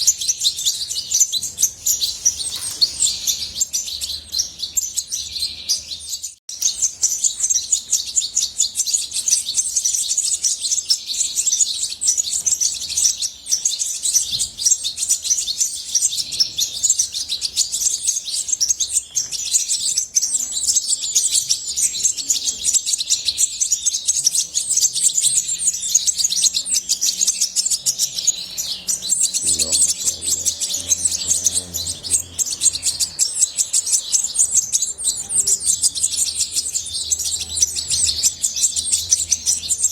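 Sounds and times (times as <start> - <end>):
goldfinch twittering song: 0.0 - 39.9.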